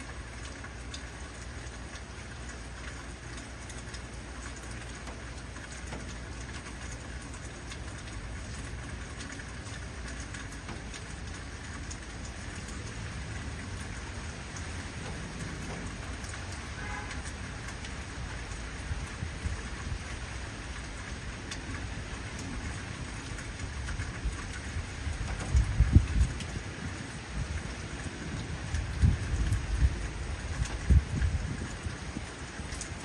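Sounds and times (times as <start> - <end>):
heavy rain falling: 0.0 - 33.0
low rumble of thunder: 21.9 - 33.0.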